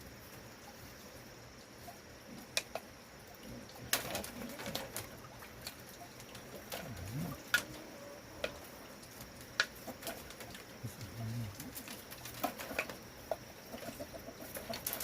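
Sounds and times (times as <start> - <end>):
low cooing bird call: 6.7 - 8.9.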